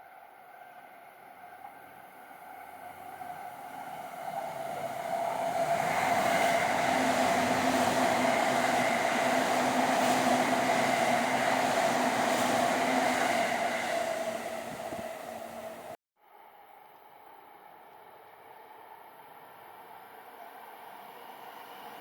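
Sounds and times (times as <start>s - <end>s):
electric train passing: 1.0s - 16.0s.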